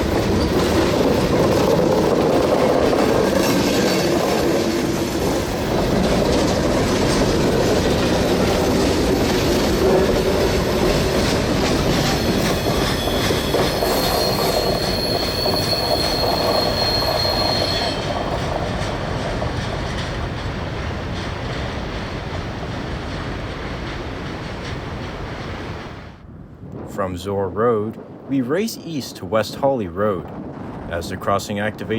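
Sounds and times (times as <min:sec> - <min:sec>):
high train wheel squeal: 0:00.0 - 0:22.0
freight train wheels clattering: 0:00.0 - 0:26.0.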